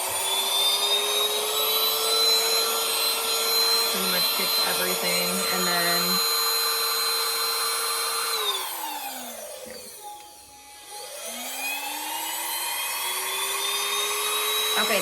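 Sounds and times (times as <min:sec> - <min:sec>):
handheld vacuum motor running: 0:00.0 - 0:15.0.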